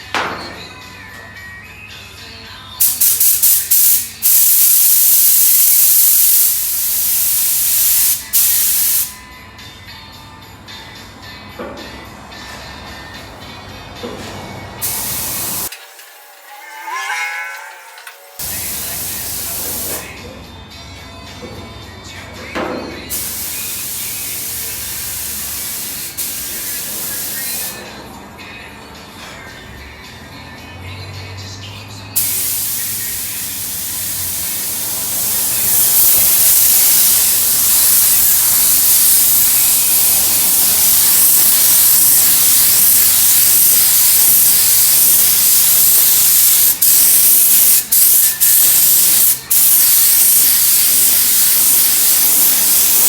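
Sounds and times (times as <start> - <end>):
pressurised spray hissing: 2.8 - 9.2, 14.8 - 15.7, 18.4 - 20.1, 23.1 - 27.8, 32.2 - 53.0.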